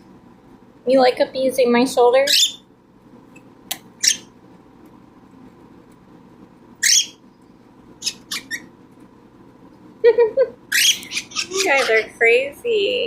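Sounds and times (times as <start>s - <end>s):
cockatiel calling: 4.0s - 4.3s, 6.8s - 7.2s, 8.0s - 8.7s, 10.7s - 12.1s.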